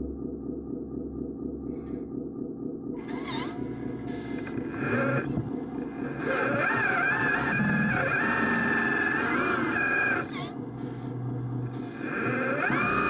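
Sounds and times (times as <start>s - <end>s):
small motor running: 6.0s - 11.1s, 11.7s - 13.0s.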